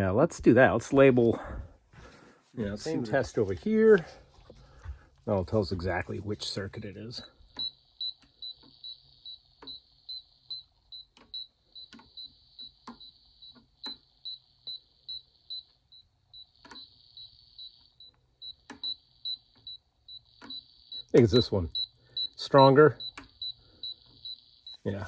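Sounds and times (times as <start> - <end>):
rapid high-pitched beeping: 5.5 - 13.5, 14.1 - 25.0.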